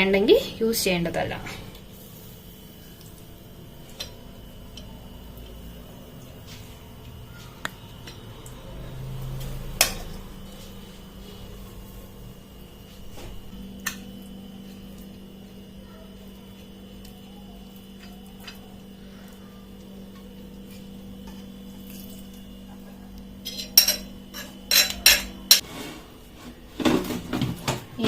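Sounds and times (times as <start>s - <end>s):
air fryer humming: 0.0s - 28.0s
kitchenware clinking and clattering: 22.7s - 25.7s.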